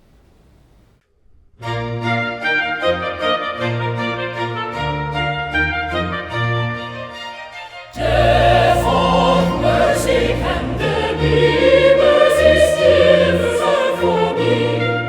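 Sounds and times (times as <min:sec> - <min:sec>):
orchestral accompaniment: 0:01.6 - 0:15.0
choir singing a hymn: 0:07.9 - 0:15.0.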